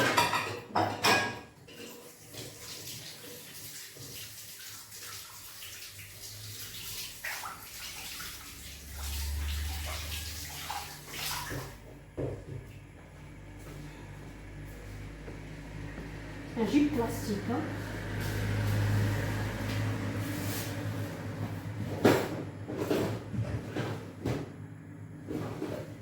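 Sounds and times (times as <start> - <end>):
tap water running: 0.8 - 13.0
water splashing on hands: 3.8 - 11.8.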